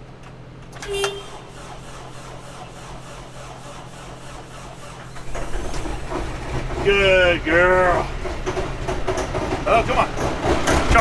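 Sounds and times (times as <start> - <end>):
diesel engine cranking on starter: 0.0 - 11.0
short tone: 0.8 - 1.5.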